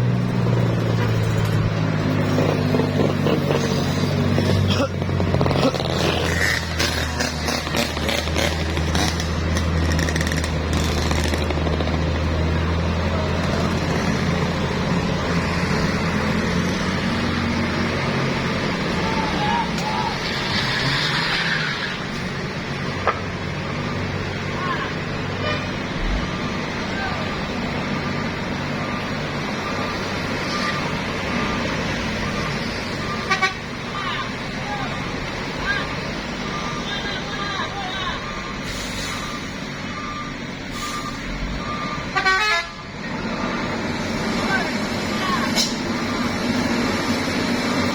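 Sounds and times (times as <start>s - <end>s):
diesel engine droning: 0.0s - 47.9s
road traffic noise: 0.0s - 47.9s
horn toots: 33.1s - 33.7s, 42.0s - 42.8s.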